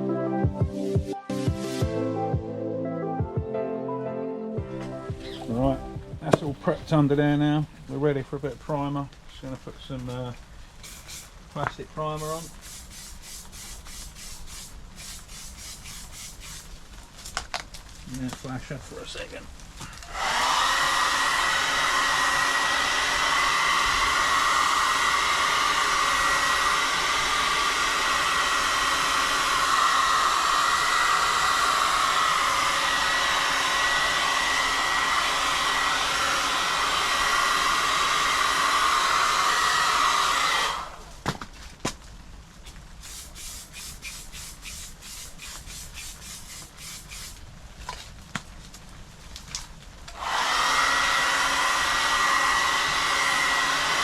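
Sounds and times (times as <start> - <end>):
heat gun blowing air: 10.8 - 11.4, 12.0 - 16.8, 20.0 - 41.1, 43.0 - 47.4, 50.2 - 54.0.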